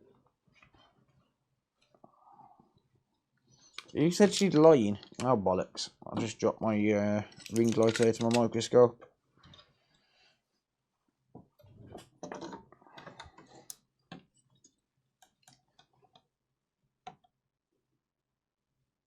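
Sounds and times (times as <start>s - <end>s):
small hard objects clattering: 7.4s - 8.5s.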